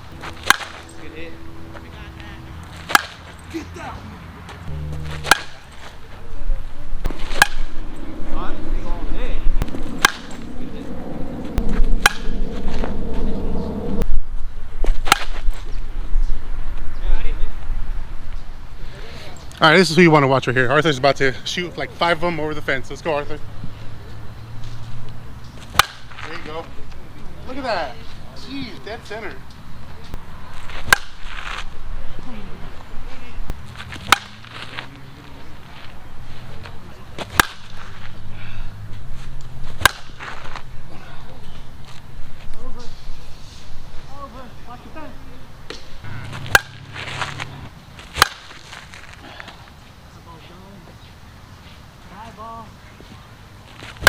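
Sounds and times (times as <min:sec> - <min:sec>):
bat cracking against softball: 0:00.2 - 0:00.9, 0:02.6 - 0:03.4, 0:04.7 - 0:06.0, 0:07.0 - 0:07.8, 0:09.6 - 0:10.4, 0:11.6 - 0:12.3, 0:14.8 - 0:15.7, 0:25.5 - 0:27.0, 0:30.6 - 0:31.8, 0:33.8 - 0:34.9, 0:37.2 - 0:38.2, 0:39.4 - 0:40.7, 0:45.7 - 0:49.2
sharp cracks: 0:00.4 - 0:00.8, 0:02.8 - 0:03.3, 0:05.2 - 0:05.6, 0:09.6 - 0:10.4, 0:15.0 - 0:15.5, 0:25.7 - 0:26.2, 0:30.8 - 0:31.3, 0:34.0 - 0:34.4, 0:37.3 - 0:37.8, 0:39.8 - 0:40.3, 0:46.5 - 0:49.0.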